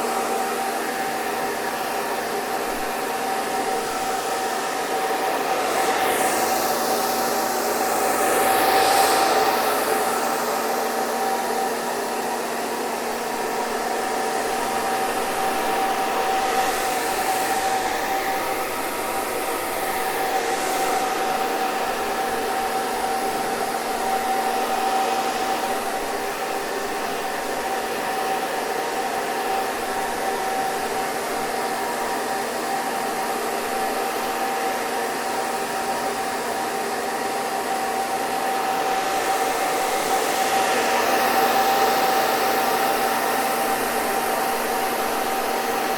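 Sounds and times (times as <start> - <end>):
hair dryer blowing air: 0.0 - 45.9.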